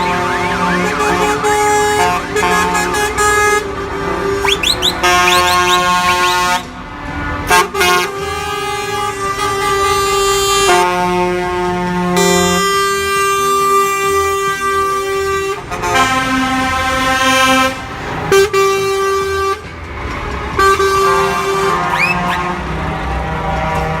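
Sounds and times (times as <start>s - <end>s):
truck air horn blasts: 0.0s - 19.7s, 20.5s - 24.0s
short rising whistles: 4.4s - 6.3s.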